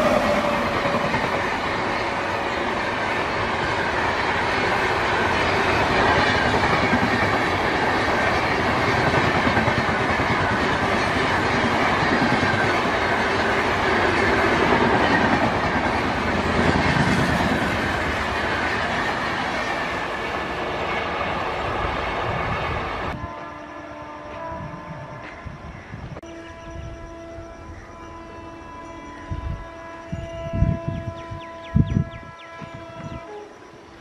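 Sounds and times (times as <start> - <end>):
train wheels rolling and clattering: 0.0 - 23.2.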